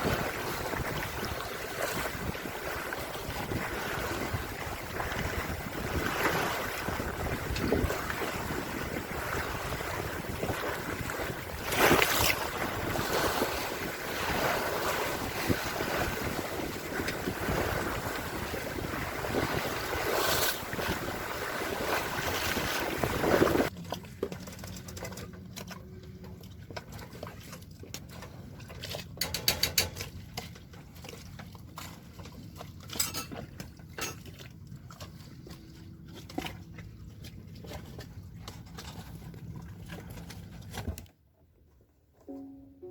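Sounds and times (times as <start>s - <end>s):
wind gusts: 0.0s - 23.7s
water noise: 0.0s - 41.1s, 42.2s - 42.9s
scattered clicks and knocks: 29.2s - 30.1s.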